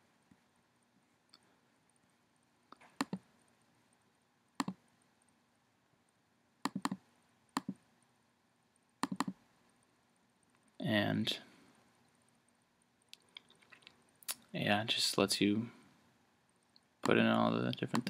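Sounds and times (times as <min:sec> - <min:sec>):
computer mouse clicking: 0:02.7 - 0:03.2, 0:04.6 - 0:04.8, 0:06.6 - 0:07.0, 0:07.6 - 0:07.8, 0:09.0 - 0:09.4.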